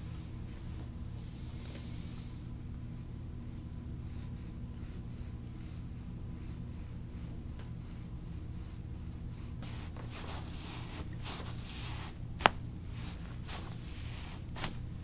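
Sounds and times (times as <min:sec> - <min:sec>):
rustling of hands and clothing: 0:09.6 - 0:15.0.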